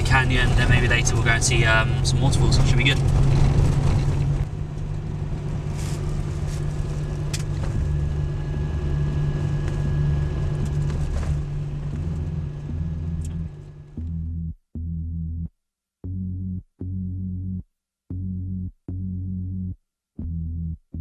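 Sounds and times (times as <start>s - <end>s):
car engine and road noise: 0.0s - 14.4s
electronic music pulsing beat: 11.9s - 21.0s.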